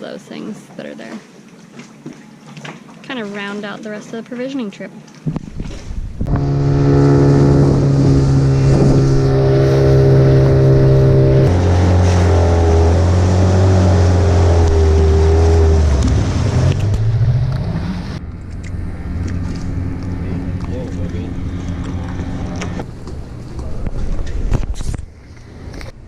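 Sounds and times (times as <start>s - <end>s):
small engine running: 6.3s - 16.0s.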